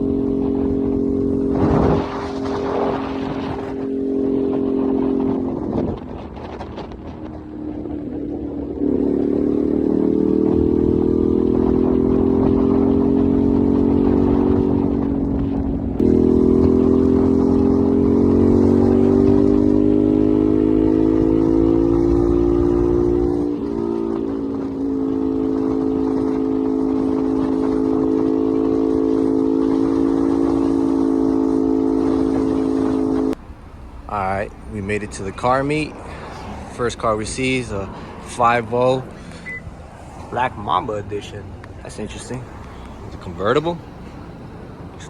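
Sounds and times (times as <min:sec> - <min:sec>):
motorcycle engine pulling: 0:00.0 - 0:45.0
wind rumble: 0:00.0 - 0:45.0.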